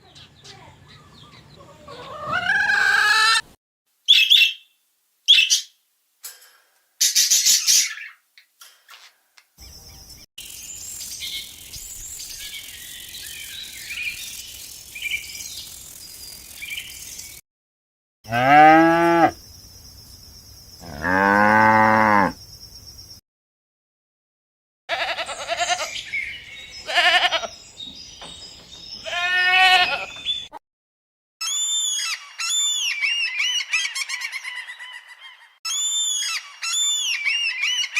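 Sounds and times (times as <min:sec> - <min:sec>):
faint chirps: 0:09.6 - 0:17.4
high-pitched hiss: 0:10.4 - 0:17.4
cow mooing: 0:18.3 - 0:19.4, 0:20.8 - 0:22.4.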